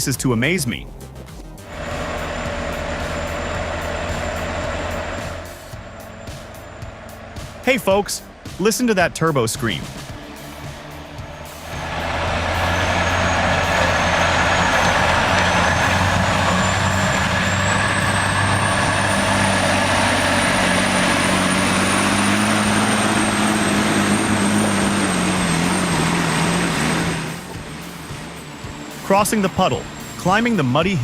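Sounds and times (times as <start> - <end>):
truck engine under load: 1.6 - 31.0
turbo whistle: 11.4 - 27.6.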